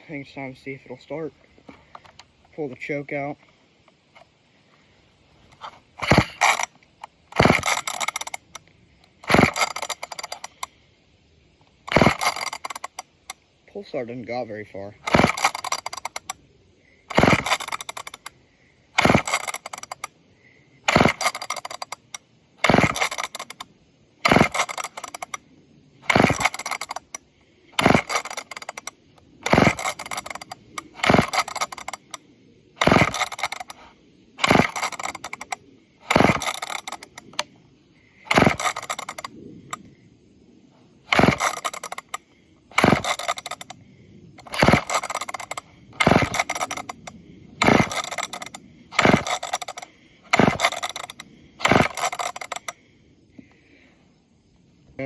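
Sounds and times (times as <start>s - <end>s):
chainsaw starter rope pulls: 5.4s - 10.7s, 11.7s - 16.4s, 17.0s - 20.2s, 20.8s - 25.4s, 26.0s - 32.2s, 32.8s - 37.5s, 38.2s - 39.8s, 41.0s - 43.8s, 44.4s - 52.8s
engine turning over without firing: 5.5s - 10.7s, 11.8s - 13.4s, 15.0s - 16.4s, 17.1s - 20.2s, 20.8s - 25.4s, 26.0s - 27.2s, 27.8s - 32.2s, 32.8s - 37.5s, 38.2s - 39.8s, 41.0s - 43.8s, 44.4s - 52.8s.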